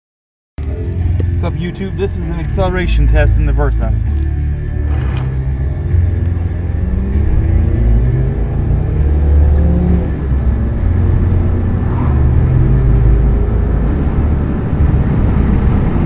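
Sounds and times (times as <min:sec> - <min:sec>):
car engine accelerating hard: 0:00.6 - 0:16.0.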